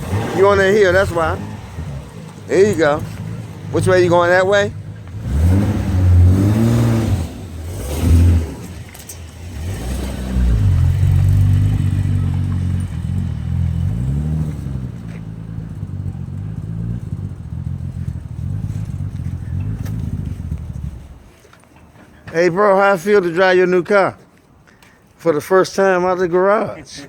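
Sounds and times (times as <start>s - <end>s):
car engine revving: 0.0s - 21.2s.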